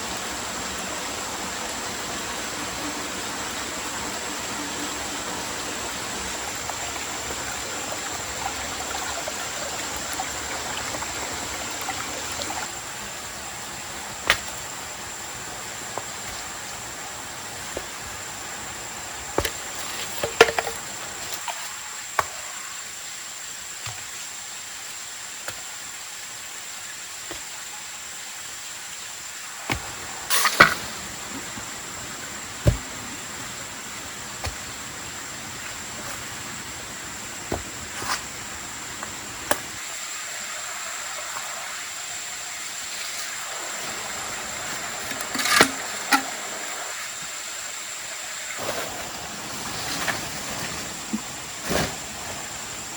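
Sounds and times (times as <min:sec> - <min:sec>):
steady hiss: 0:00.0 - 0:52.9.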